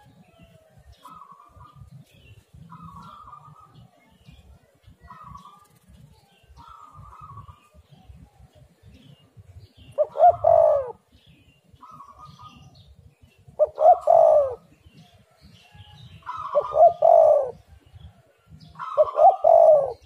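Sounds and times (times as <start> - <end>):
dove cooing: 0.0 - 2.0, 2.6 - 4.1, 5.0 - 8.6, 9.8 - 11.2, 13.6 - 15.0, 15.7 - 17.8, 18.7 - 20.0.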